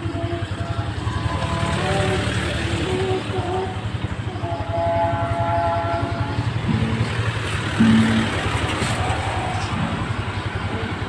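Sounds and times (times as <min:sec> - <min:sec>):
vehicle engines running: 0:00.0 - 0:11.0
slow melody of held notes: 0:04.3 - 0:08.6.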